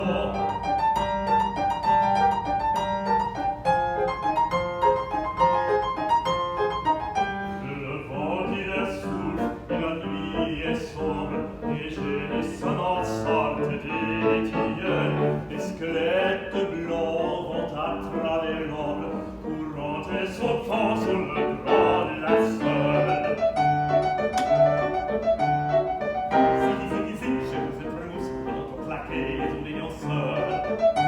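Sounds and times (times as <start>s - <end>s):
opera singer with vibrato: 0.0s - 0.7s, 7.6s - 23.8s, 26.4s - 31.0s
piano playing: 0.0s - 31.0s.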